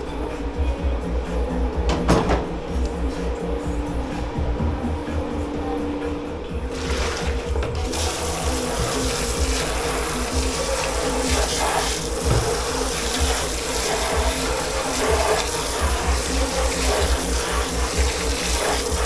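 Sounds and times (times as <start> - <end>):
tap water running into sink: 6.7 - 19.0.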